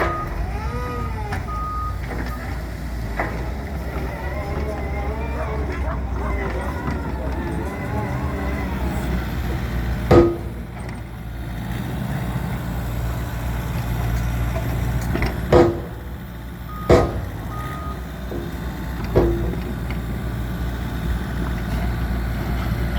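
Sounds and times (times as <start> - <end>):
truck diesel engine running: 0.0 - 22.9
sharp knocks: 10.1 - 11.0, 15.4 - 16.2, 16.8 - 17.5, 18.3 - 19.8.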